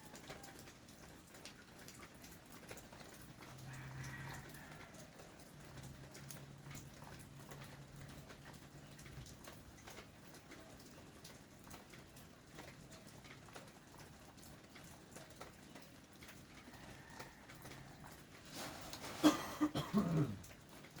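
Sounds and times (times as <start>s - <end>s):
rain drips ticking: 0.0s - 21.0s.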